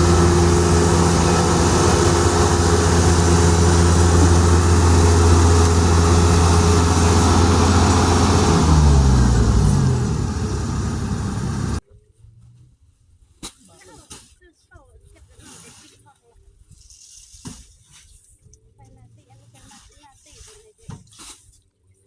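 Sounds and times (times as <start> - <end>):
harvester engine running: 0.0 - 11.8.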